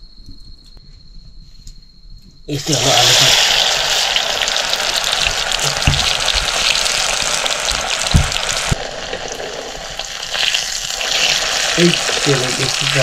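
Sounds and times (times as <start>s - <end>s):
food frying in hot oil: 2.5s - 13.0s
dull knocks: 5.7s - 6.7s, 7.7s - 8.8s.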